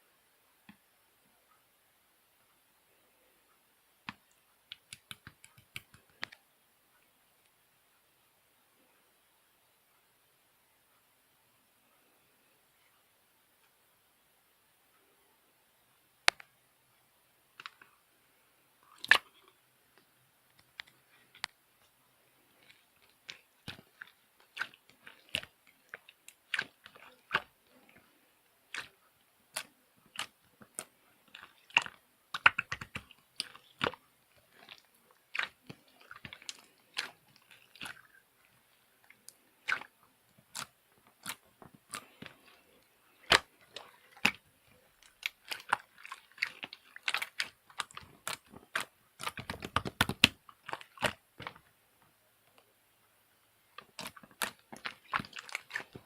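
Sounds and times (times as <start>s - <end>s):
slime squeezed clicking and popping: 46.4s - 51.5s.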